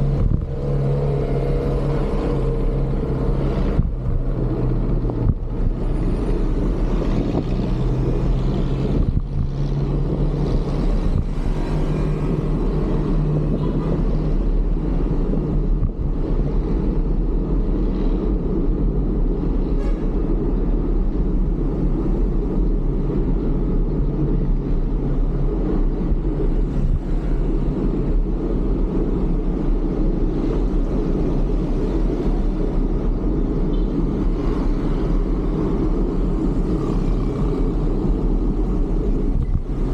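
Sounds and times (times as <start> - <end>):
road and traffic noise: 0.0 - 39.9
wind rumble on microphone: 0.0 - 39.9.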